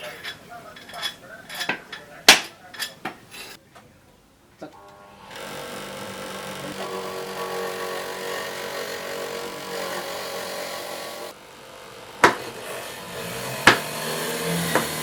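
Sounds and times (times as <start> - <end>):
kitchen knocks and clinks: 0.0 - 3.2
motor hum: 4.8 - 15.0.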